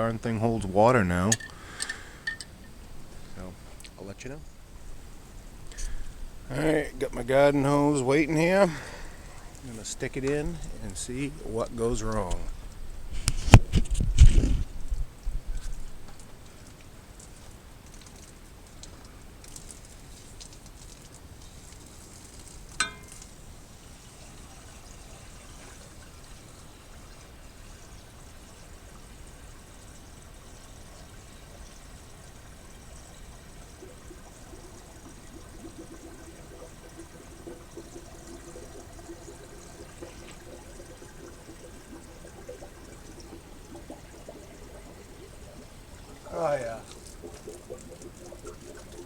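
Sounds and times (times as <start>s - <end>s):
faint steady tone: 0.0s - 13.0s, 22.7s - 49.0s
hose water pouring: 0.0s - 49.0s.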